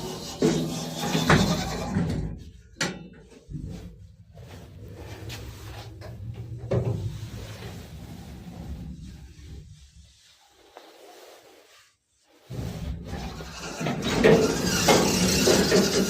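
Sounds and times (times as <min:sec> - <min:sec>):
low hum: 0:03.2 - 0:10.4.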